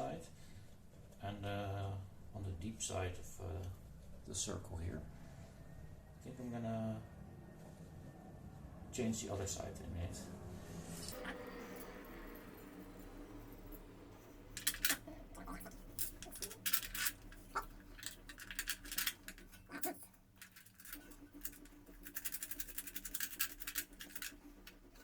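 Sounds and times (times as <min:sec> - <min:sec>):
parts clicking knocking and scraping: 0:11.2 - 0:25.0.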